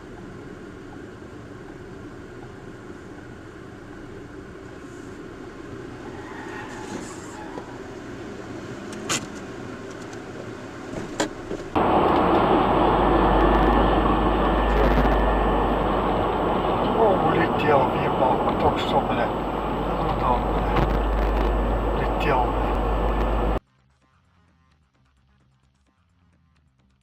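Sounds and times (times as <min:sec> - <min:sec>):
car road noise: 0:00.0 - 0:23.6
tyre and wind rumble: 0:11.0 - 0:23.6.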